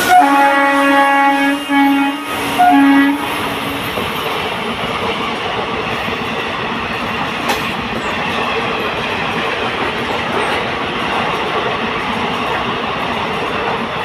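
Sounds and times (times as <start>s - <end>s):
train horn blasts: 0.0s - 3.8s
train wheels rumbling and clacking: 0.0s - 14.0s.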